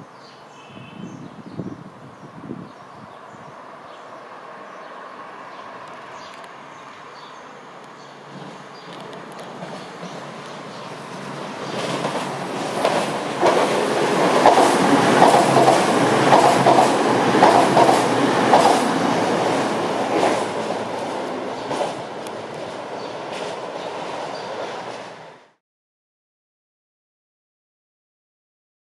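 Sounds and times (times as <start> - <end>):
train wheels clicking over rail joints: 7.8 - 25.1.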